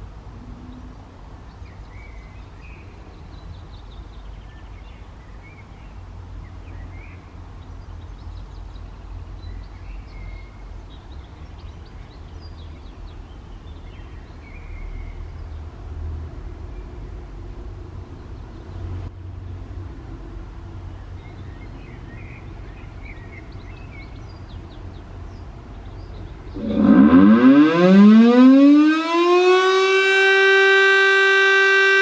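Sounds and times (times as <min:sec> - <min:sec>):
birds chirping: 0:21.0 - 0:30.0.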